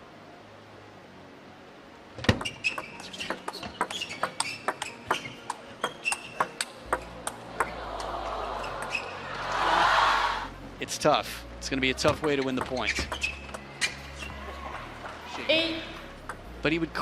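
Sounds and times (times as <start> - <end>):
crowd noise: 6.4 - 10.8, 13.6 - 16.2.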